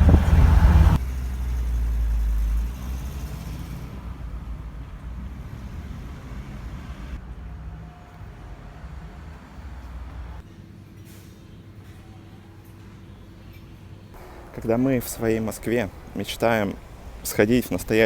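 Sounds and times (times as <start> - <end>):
vehicle engine rumble: 0.0 - 10.4, 14.2 - 18.0.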